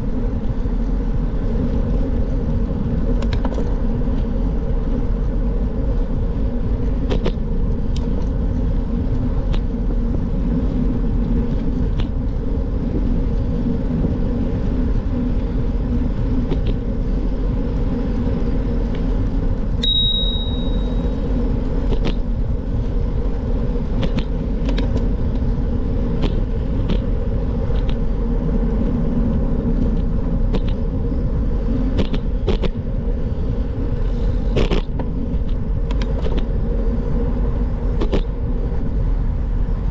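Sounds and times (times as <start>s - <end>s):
bike rolling noise: 0.0s - 39.9s
wind on microphone: 0.0s - 39.9s
brief high beep: 19.8s - 21.1s.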